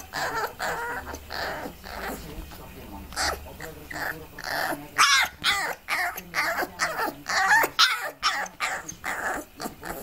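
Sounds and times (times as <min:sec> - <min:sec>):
puppy yipping and howling: 0:00.0 - 0:02.2, 0:05.0 - 0:09.5.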